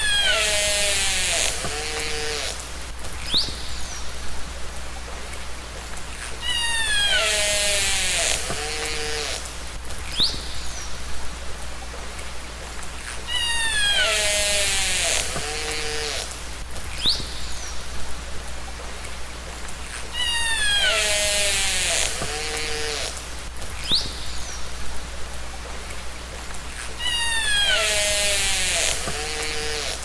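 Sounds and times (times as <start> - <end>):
killer whale calls underwater: 6.4 - 8.3, 13.2 - 15.8, 20.1 - 22.0, 27.0 - 28.2.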